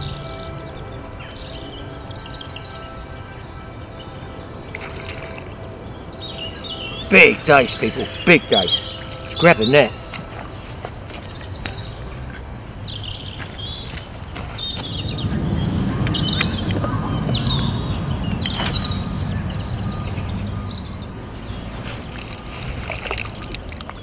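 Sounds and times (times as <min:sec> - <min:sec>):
small birds chirping: 0:00.0 - 0:24.0
low rumbling noise: 0:14.8 - 0:24.0.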